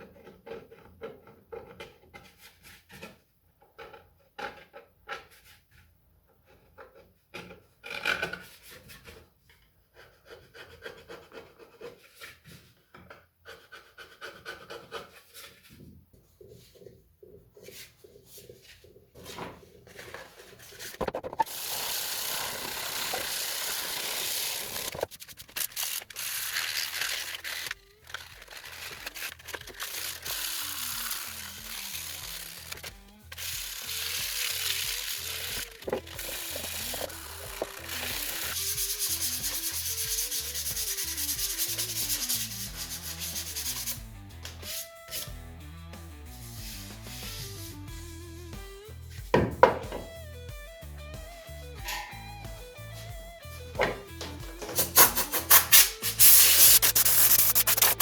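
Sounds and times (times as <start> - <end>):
sanding strokes on plastic: 13.4 - 15.7, 20.5 - 44.0, 54.6 - 58.0
spray hissing: 54.8 - 58.0.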